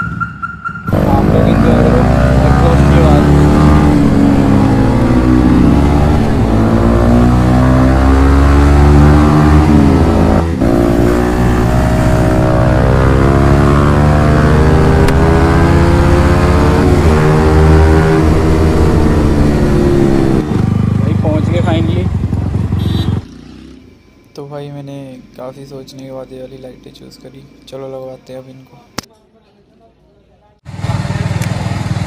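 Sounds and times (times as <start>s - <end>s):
motorcycle engine revving: 0.8s - 24.0s, 30.7s - 32.0s.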